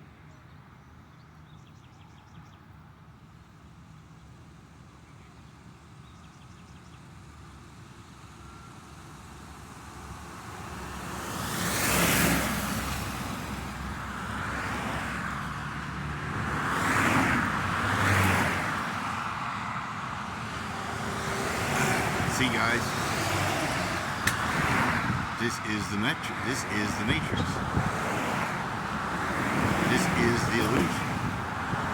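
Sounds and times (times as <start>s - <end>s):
cars passing by: 9.4s - 31.9s.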